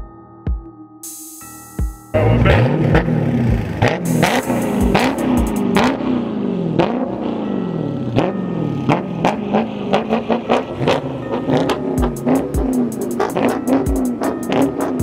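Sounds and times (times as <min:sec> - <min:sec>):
sharp beats: 0:01.0 - 0:06.0, 0:10.8 - 0:15.0
car engine revving: 0:02.2 - 0:15.0.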